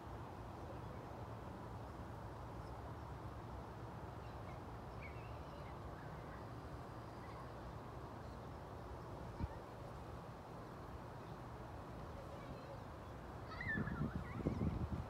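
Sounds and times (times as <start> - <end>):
faint bird chirps: 4.2 - 7.6, 13.5 - 14.8.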